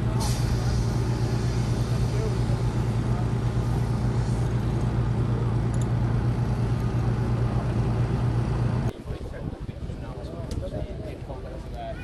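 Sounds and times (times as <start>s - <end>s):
loud tractor engine running: 0.0s - 8.9s.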